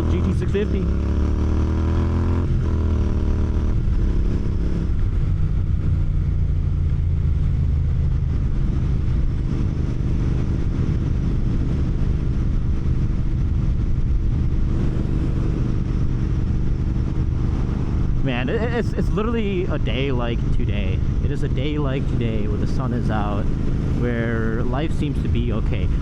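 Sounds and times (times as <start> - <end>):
motorcycle engine riding: 0.0 - 26.0.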